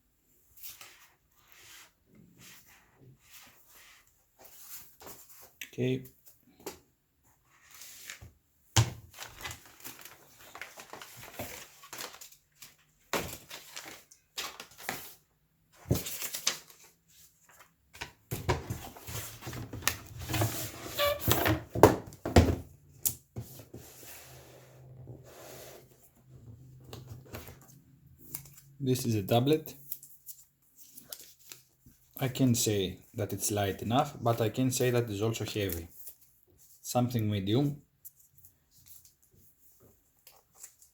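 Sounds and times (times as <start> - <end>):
packaging rustling: 9.1 - 15.2.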